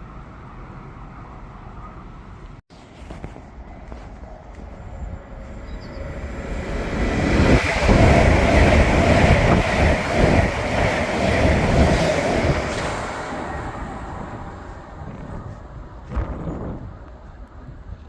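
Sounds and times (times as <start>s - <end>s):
train rumbling past: 3.4s - 17.4s.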